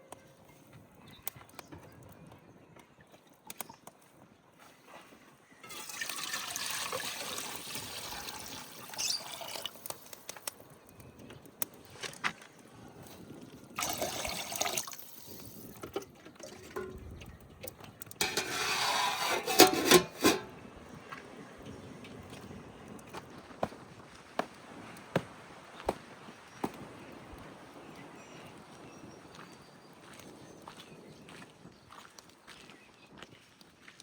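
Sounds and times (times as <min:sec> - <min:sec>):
water pouring and splashing: 0:05.6 - 0:10.5, 0:13.1 - 0:22.5.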